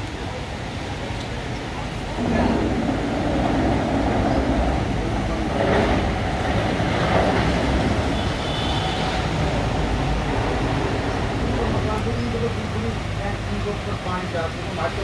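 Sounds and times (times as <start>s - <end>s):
torrential rain pouring: 0.0s - 15.0s
low rumble: 2.0s - 8.0s.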